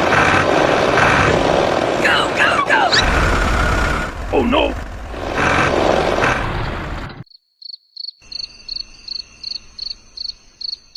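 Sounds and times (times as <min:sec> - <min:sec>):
noisy burst: 0:00.0 - 0:07.2
cricket-like high chirping: 0:07.2 - 0:10.9.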